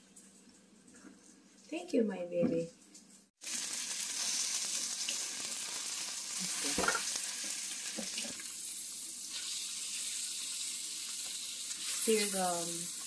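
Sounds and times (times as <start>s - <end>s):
onions sizzling in hot oil: 3.4s - 13.0s.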